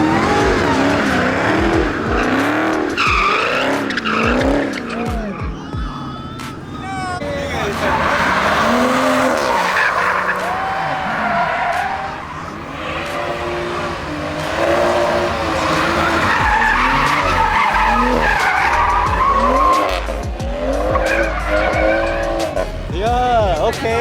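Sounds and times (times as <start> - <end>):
car engine revving: 0.0 - 24.0
tyres squealing and skidding: 0.0 - 24.0.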